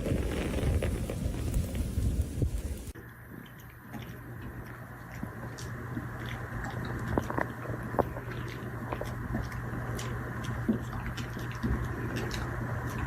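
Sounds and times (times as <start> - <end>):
steady low hum: 0.0 - 13.0
dog chewing: 3.4 - 13.0.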